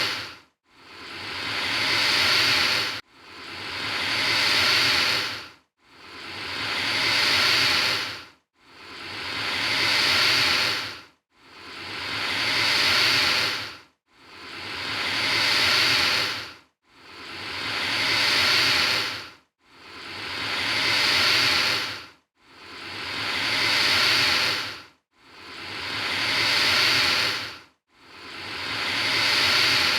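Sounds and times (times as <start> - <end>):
alligator hissing: 0.0 - 5.4, 6.2 - 8.2, 8.8 - 11.0, 11.7 - 13.7, 14.4 - 16.5, 17.1 - 19.2, 19.9 - 22.0, 22.7 - 24.8, 25.4 - 27.5, 28.2 - 29.9.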